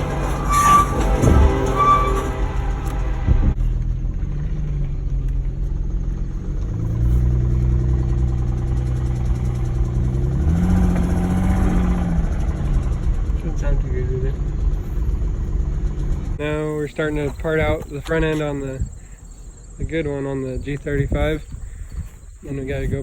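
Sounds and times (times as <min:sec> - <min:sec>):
car engine revving: 0:00.0 - 0:16.4.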